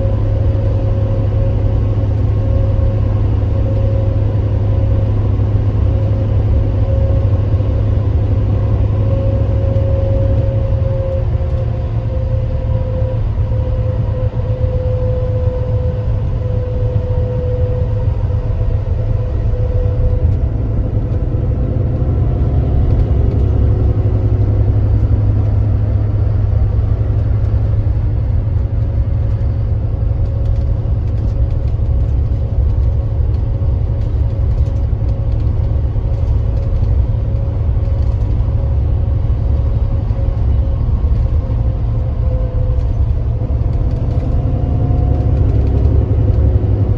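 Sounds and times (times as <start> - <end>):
bus engine droning: 0.0 - 46.9.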